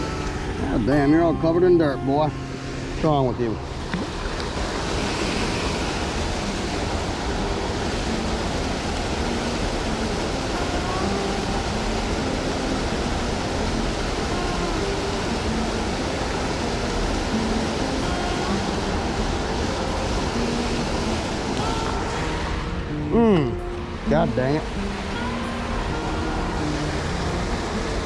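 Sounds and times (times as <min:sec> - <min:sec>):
water pouring over spillway: 0:03.7 - 0:22.5.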